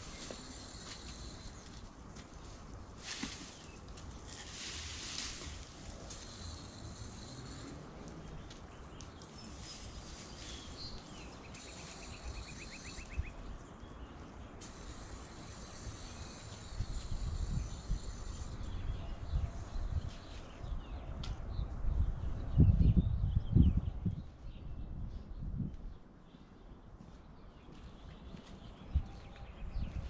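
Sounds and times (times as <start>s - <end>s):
small ticks: 5.8s - 9.5s
bird chirps: 8.3s - 21.0s.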